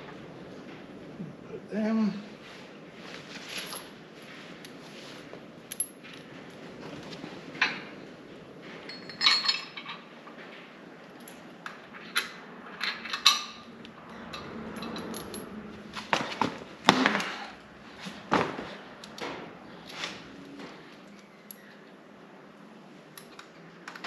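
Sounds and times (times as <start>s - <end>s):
metallic clinks of tools: 8.9s - 10.0s.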